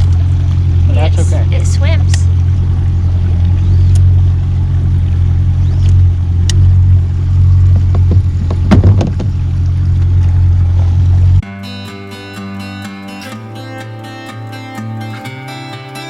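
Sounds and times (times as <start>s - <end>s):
outboard motor running: 0.0s - 11.5s
short knocks: 7.7s - 9.5s.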